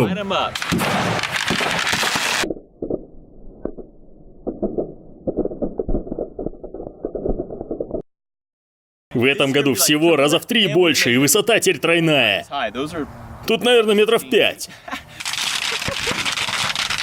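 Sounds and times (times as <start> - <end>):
fire crackling and popping: 0.4 - 8.0.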